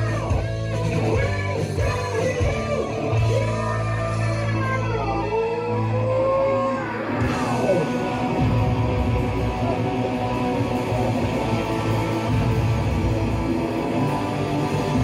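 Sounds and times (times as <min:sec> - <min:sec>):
electric guitar slide: 0:00.0 - 0:15.0
rock band playing live: 0:00.0 - 0:15.0.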